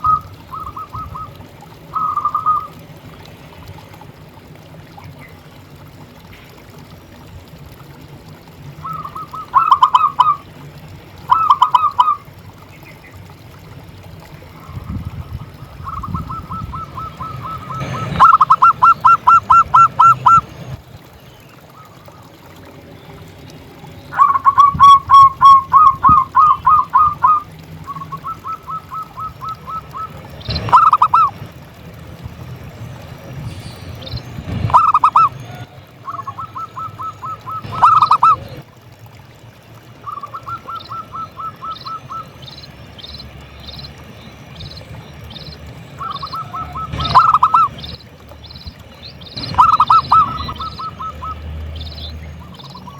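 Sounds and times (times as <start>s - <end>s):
dove cooing: 0.0s - 2.8s, 8.8s - 10.4s, 11.3s - 12.2s, 15.5s - 20.5s, 24.1s - 31.5s, 34.5s - 38.6s, 40.0s - 42.4s, 46.0s - 48.0s, 49.4s - 51.4s.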